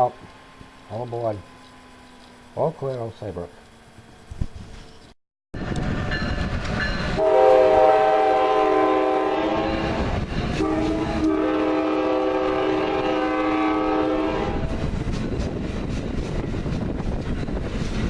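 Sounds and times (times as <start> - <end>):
moving train rumble: 0.0 - 18.0
train air horn blasts: 7.2 - 14.9.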